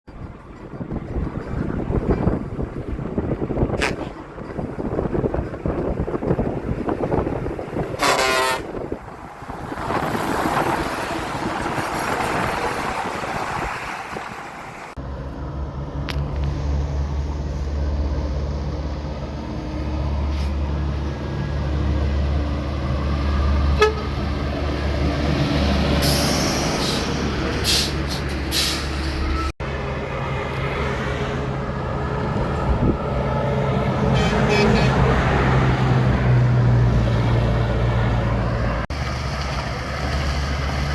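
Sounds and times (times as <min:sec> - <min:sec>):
road noise: 0:00.1 - 0:40.9
truck engine droning: 0:00.1 - 0:40.9
truck horn blast: 0:08.0 - 0:08.8, 0:23.7 - 0:24.3, 0:34.0 - 0:35.2.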